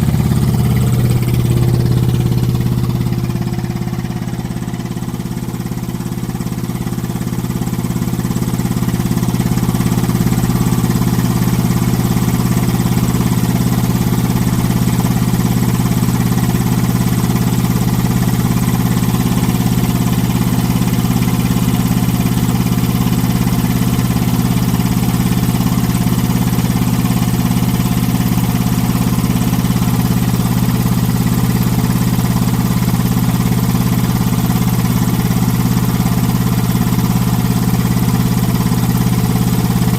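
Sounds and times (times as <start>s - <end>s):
air compressor running: 0.0s - 17.8s, 29.4s - 39.9s.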